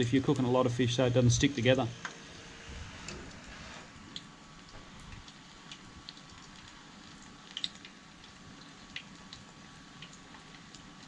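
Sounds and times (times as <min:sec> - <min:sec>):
fish frying in oil: 0:00.0 - 0:11.0
oil popping and crackling: 0:02.9 - 0:11.0.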